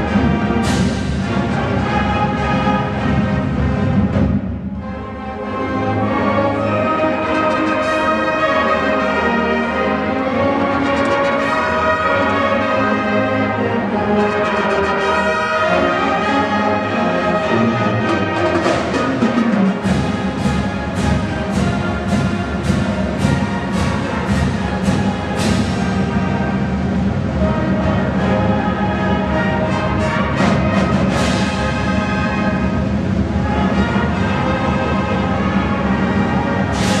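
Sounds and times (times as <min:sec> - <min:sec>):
low drums: 0:00.0 - 0:05.0, 0:18.0 - 0:37.0
brass chords: 0:00.0 - 0:37.0
sharp percussion hits: 0:18.5 - 0:27.3, 0:36.7 - 0:37.0.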